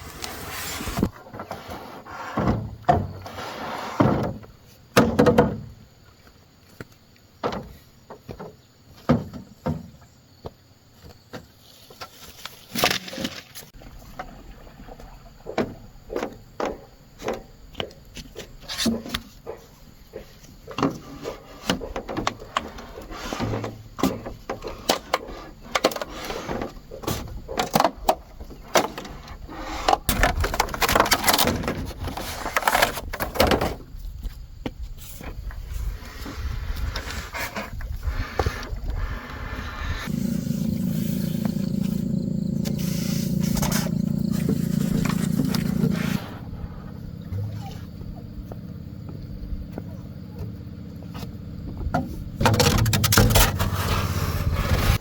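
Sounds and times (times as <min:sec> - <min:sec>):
wooden knocks and thuds: 0:04.0 - 0:05.8, 0:07.4 - 0:11.6, 0:15.4 - 0:22.6.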